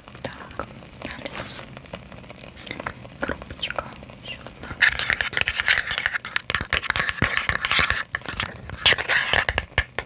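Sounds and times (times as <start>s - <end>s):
tapping and scratching on boxes: 4.8s - 10.0s.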